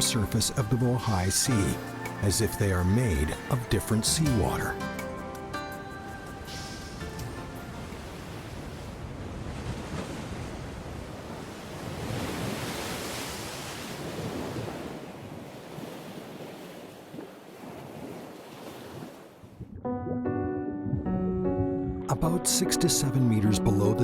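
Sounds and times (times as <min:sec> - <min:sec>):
sea waves breaking: 0:00.0 - 0:19.7.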